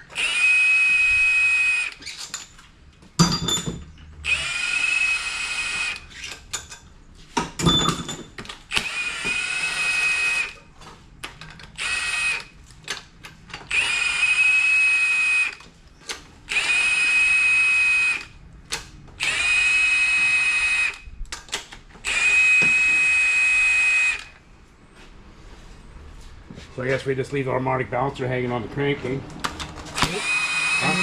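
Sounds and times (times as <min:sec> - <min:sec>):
cordless power tool whining: 0:04.2 - 0:06.2, 0:08.7 - 0:10.6, 0:22.0 - 0:24.4, 0:29.8 - 0:31.0.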